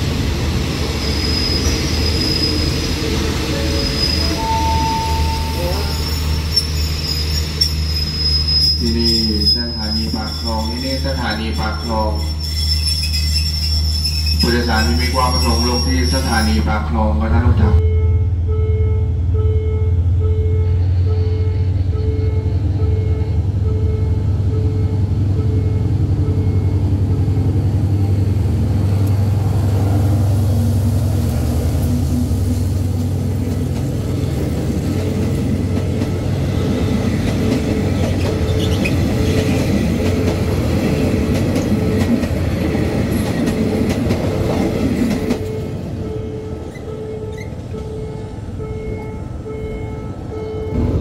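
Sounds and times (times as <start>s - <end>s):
diesel locomotive engine hum: 0.0s - 12.3s, 13.0s - 51.0s
wheels rattling on rail: 24.9s - 51.0s
repeating beeping tone: 45.3s - 50.9s.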